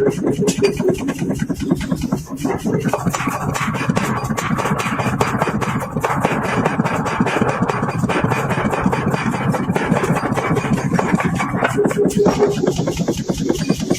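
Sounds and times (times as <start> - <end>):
forging machinery drone and clatter: 0.0 - 13.9.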